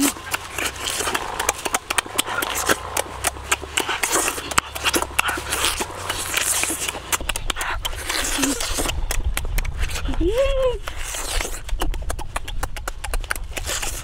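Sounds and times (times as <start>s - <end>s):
wet chewing and lip-smacking: 0.0s - 14.0s.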